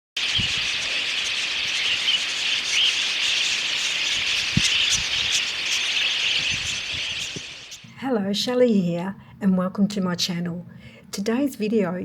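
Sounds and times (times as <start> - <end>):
small chirps: 0.2 - 7.8.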